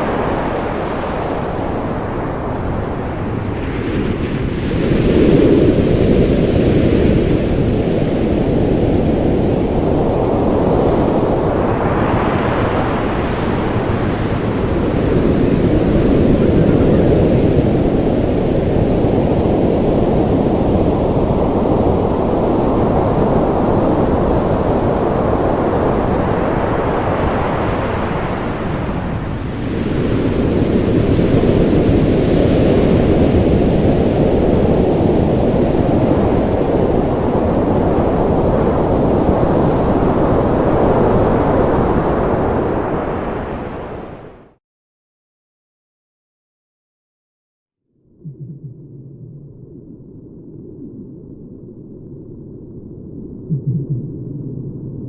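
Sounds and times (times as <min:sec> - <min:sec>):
rushing water: 0:00.0 - 0:05.0.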